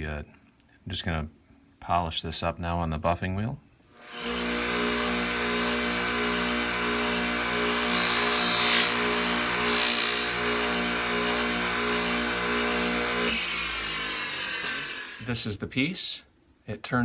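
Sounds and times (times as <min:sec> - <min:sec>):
buffing wheel humming: 0:04.0 - 0:15.3.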